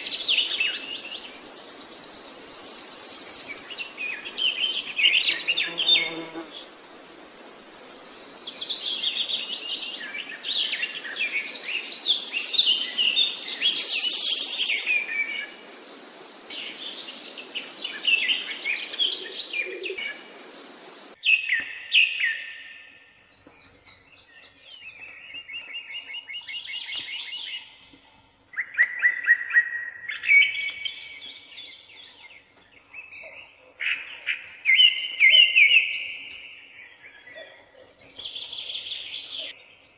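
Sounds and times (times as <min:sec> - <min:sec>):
birds chirping and calling: 0:00.0 - 0:06.5, 0:07.6 - 0:22.4
steady hiss: 0:00.0 - 0:21.2.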